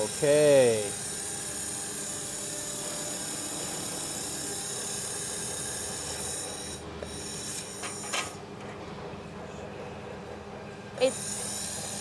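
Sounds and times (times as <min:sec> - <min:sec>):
welding machine hiss and whine: 0:00.0 - 0:08.4, 0:11.0 - 0:12.0.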